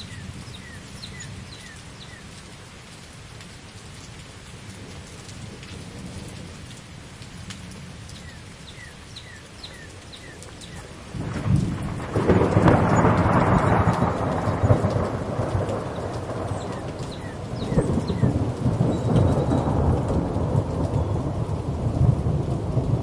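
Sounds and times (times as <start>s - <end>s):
steady rain falling: 0.0s - 23.0s
thunder rumbling: 10.6s - 23.0s.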